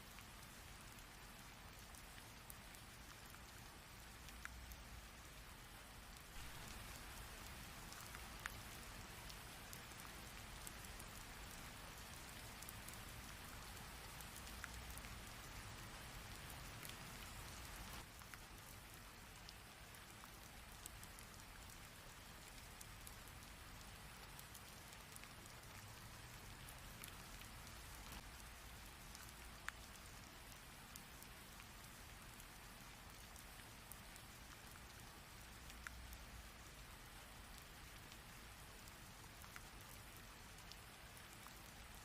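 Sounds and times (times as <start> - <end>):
single raindrops ticking: 0.1 - 42.0
heavy rain pouring: 6.3 - 8.7.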